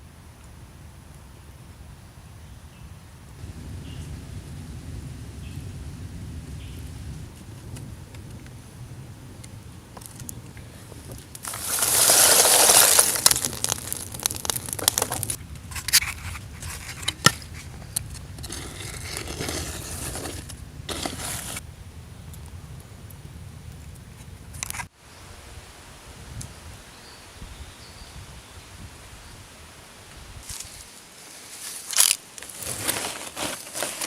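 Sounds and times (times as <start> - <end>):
brittle material crunching: 11.4 - 21.6, 31.8 - 34.0.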